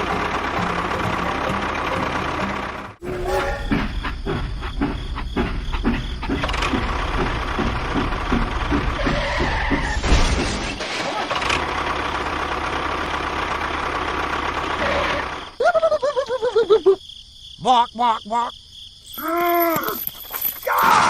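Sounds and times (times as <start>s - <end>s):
mini tractor motor chugging: 0.0s - 3.7s, 5.0s - 10.0s, 11.3s - 15.6s.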